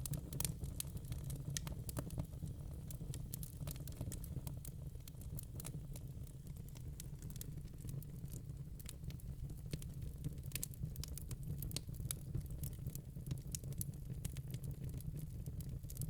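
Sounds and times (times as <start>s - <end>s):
burning wood crackling and popping: 0.0s - 16.0s.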